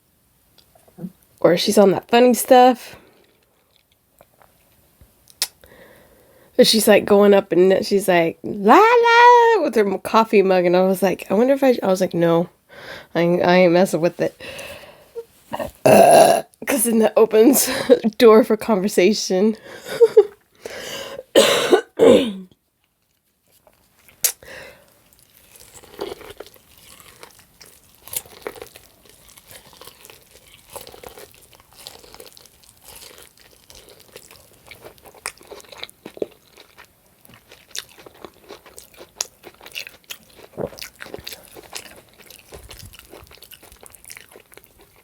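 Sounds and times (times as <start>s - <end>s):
person chewing: 22.9s - 45.0s.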